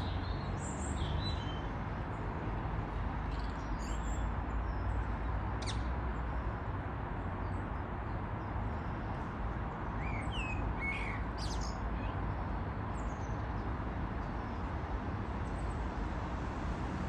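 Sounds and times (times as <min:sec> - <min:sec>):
bird chirping: 0:10.0 - 0:12.2.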